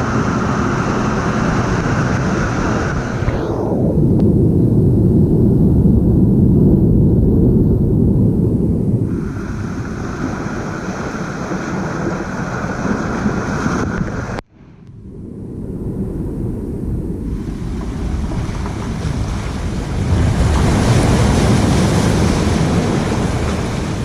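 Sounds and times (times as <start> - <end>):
waves breaking: 0.0 - 3.6, 9.1 - 14.8, 17.2 - 24.0
wind buffeting microphone: 0.0 - 24.0.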